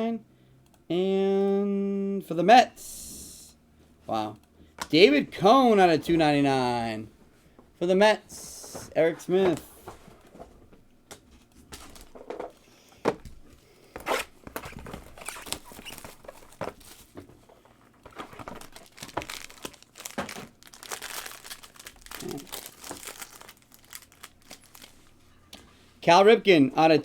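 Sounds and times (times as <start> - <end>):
plastic packaging crinkling: 11.7 - 12.5, 14.0 - 17.2, 17.8 - 25.2.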